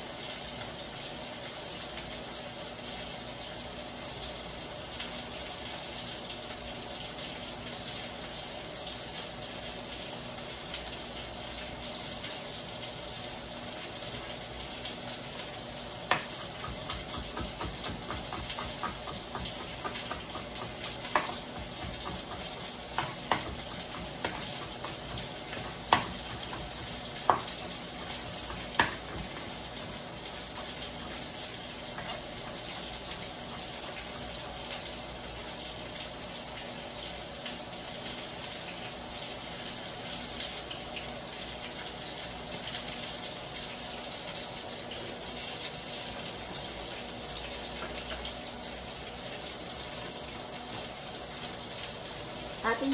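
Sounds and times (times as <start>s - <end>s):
tofu sizzling in oil: 0.0s - 52.9s
knife chopping on cutting board: 16.1s - 29.6s.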